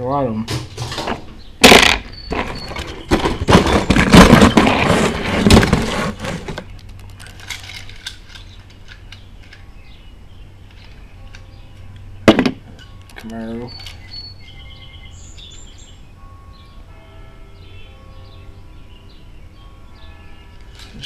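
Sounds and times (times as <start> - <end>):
metal toy cars clattering: 0.5 - 9.6, 20.7 - 21.0.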